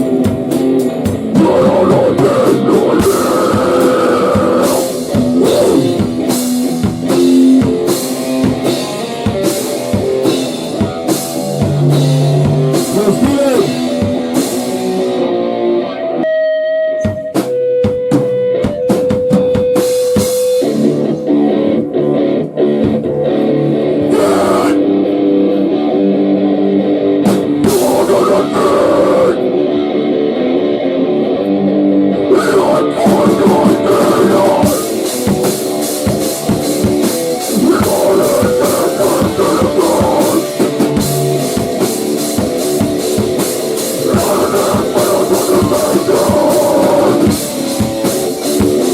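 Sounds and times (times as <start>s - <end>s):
rock band playing: 0.0s - 48.9s.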